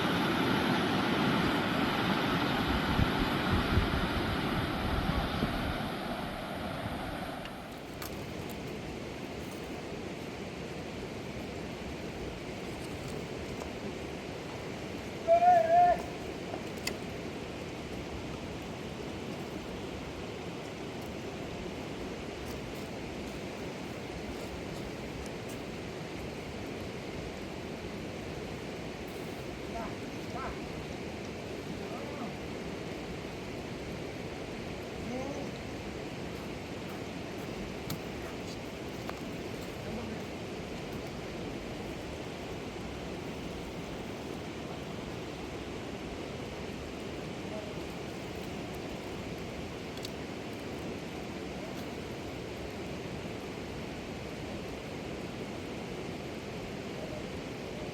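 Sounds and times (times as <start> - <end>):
fast-flowing river rushing: 0.0 - 12.6
river water rushing: 0.0 - 57.7.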